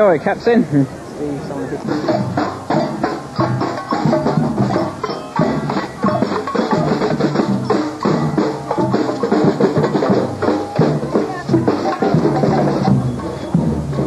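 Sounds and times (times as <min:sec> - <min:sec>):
drums beating: 0:00.0 - 0:14.0
marching band playing: 0:00.0 - 0:14.0.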